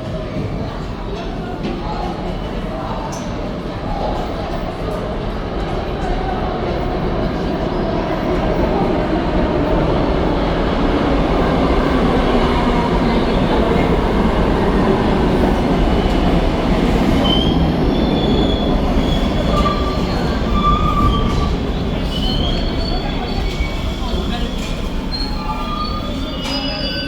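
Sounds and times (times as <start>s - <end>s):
subway train running: 0.0s - 27.0s
wheels squealing: 17.2s - 27.0s.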